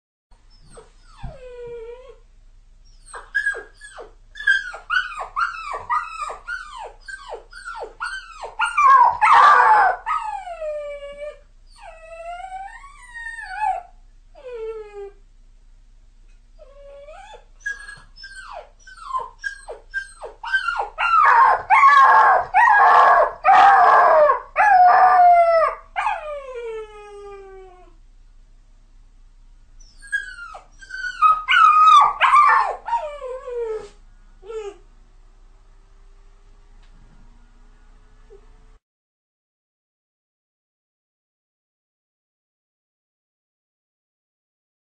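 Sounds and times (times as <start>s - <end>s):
puppy whining and crying: 0.5s - 2.2s, 2.8s - 15.2s, 16.6s - 28.0s, 29.8s - 34.9s.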